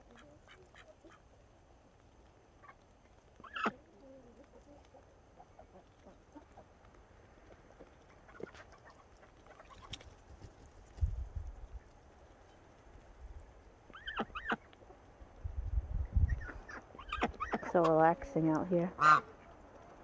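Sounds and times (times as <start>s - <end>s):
poultry clucking and calling: 0.0s - 1.3s, 3.4s - 6.9s, 7.8s - 10.0s, 13.9s - 15.0s, 16.2s - 18.0s, 19.0s - 20.0s.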